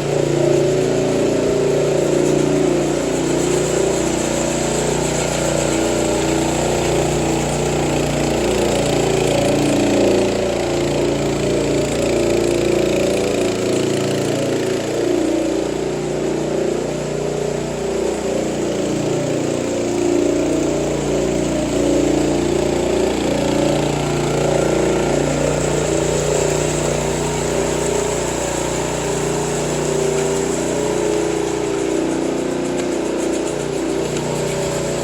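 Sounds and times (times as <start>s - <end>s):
engine running steadily: 0.0s - 35.0s.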